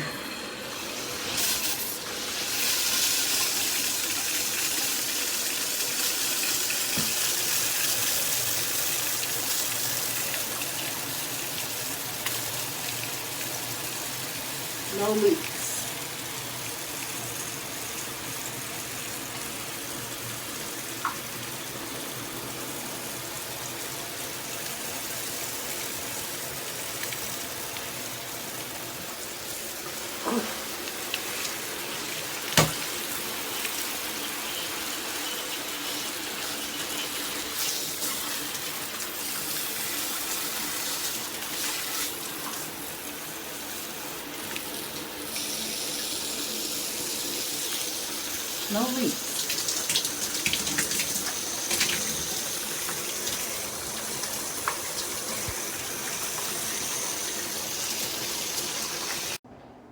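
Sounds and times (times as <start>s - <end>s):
shower head spraying water: 29.1s - 59.4s.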